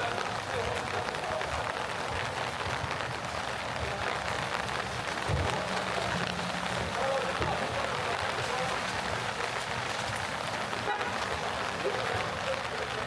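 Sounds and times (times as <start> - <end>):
rain pattering on street: 0.0 - 13.0.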